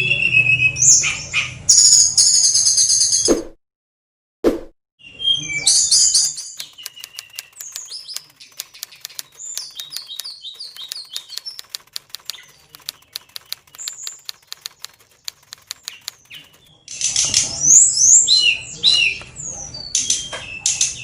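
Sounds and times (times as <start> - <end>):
bird chirping and whistling: 5.1 - 8.3, 9.1 - 11.6
sharp clicks and taps: 6.1 - 16.7.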